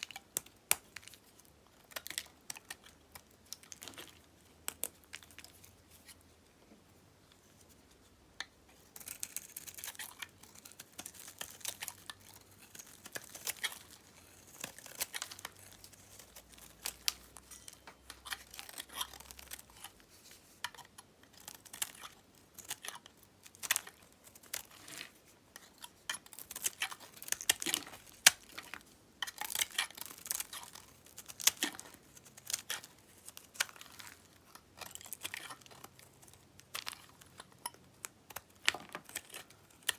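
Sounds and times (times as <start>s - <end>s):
knife cutting dry soap: 8.7s - 39.9s.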